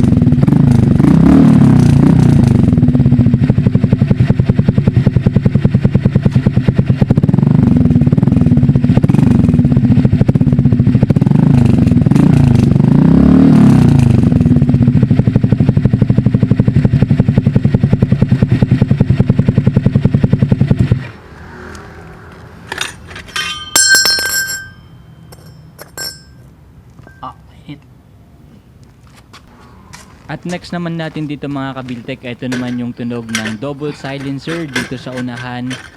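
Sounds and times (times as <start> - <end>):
scooter engine idling and revving: 0.0 - 23.0, 31.6 - 35.9
sharp clicks and clatters: 31.9 - 35.9.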